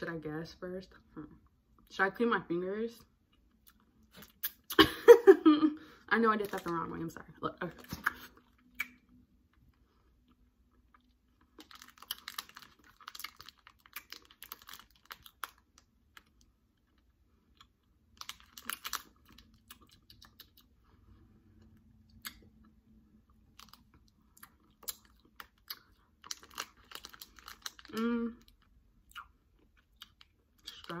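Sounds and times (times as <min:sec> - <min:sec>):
wet chewing mouth sounds: 0:18.6 - 0:22.7.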